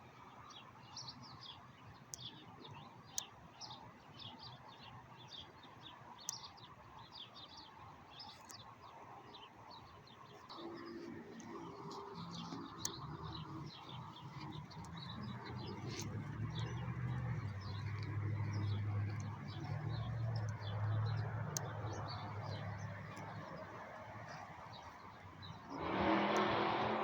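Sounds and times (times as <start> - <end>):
small birds chirping: 0.0 - 26.0
low engine hum: 10.5 - 27.0.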